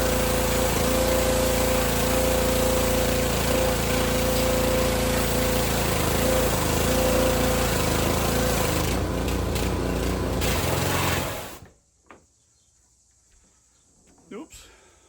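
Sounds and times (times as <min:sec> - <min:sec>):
pressure washer engine running: 0:00.0 - 0:11.7
water jet spraying wood: 0:00.0 - 0:11.7.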